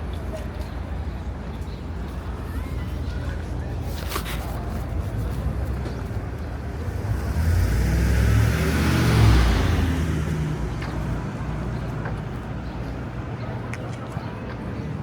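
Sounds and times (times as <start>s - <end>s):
vehicle passing by: 5.3s - 12.2s.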